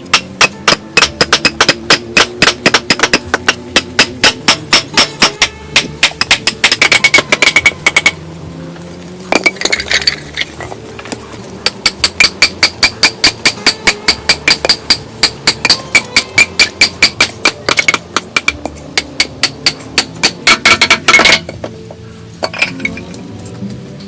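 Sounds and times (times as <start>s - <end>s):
hard tool striking metal: 0.0s - 8.2s, 11.6s - 21.7s.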